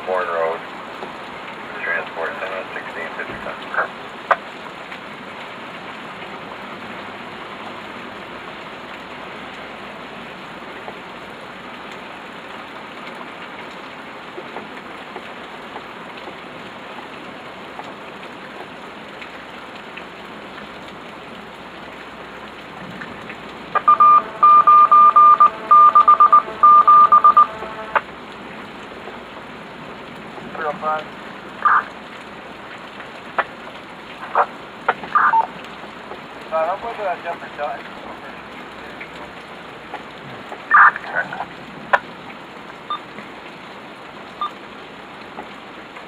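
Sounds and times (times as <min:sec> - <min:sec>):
rain hiss: 0:00.0 - 0:46.0
electronic alert tone beeping: 0:23.8 - 0:28.0, 0:35.2 - 0:35.5.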